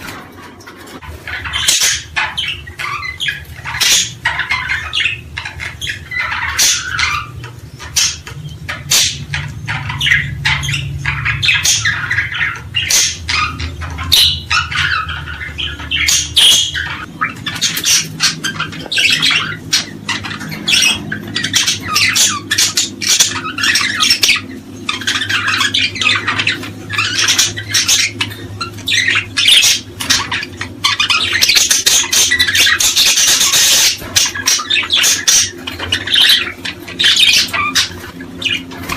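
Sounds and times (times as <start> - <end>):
small birds squawking and chirping: 0.0 - 38.9.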